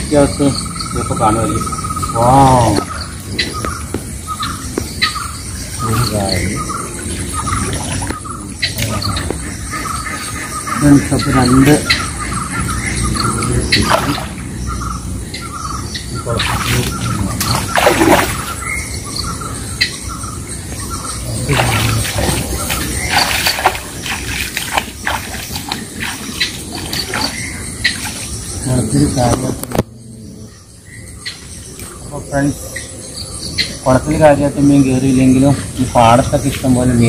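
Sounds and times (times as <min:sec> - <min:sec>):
low voice: 0:21.2 - 0:22.6.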